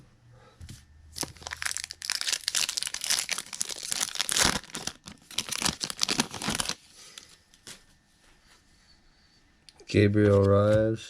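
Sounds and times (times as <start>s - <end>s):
card pack wrapper tearing: 1.2s - 6.8s.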